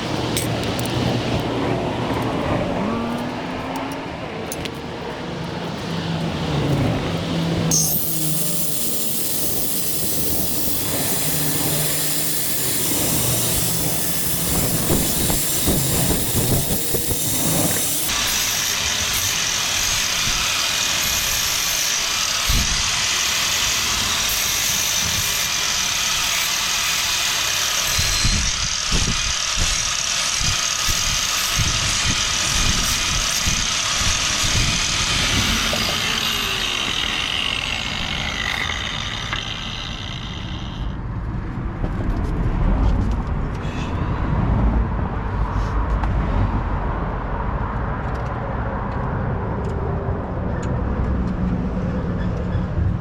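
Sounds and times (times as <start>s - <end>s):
angle grinder grinding steel: 7.6s - 41.0s.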